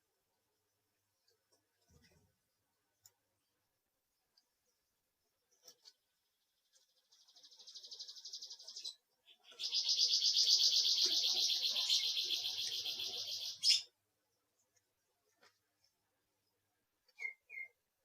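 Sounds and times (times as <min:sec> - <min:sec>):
bird trilling: 0:09.5 - 0:13.9
sharp bird chirp: 0:09.5 - 0:13.9, 0:17.2 - 0:17.8.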